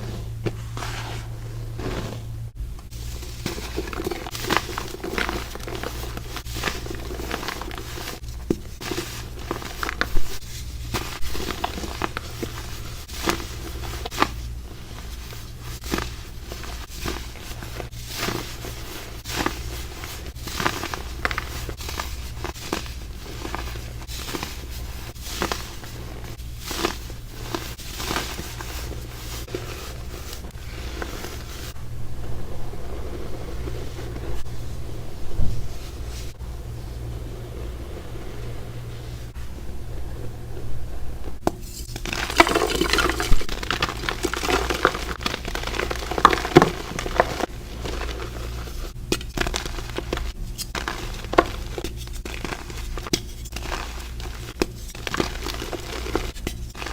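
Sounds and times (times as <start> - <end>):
crumble crunching: 0.0 - 56.9
dull steady rumble: 0.0 - 56.9
steady low hum: 0.0 - 56.9.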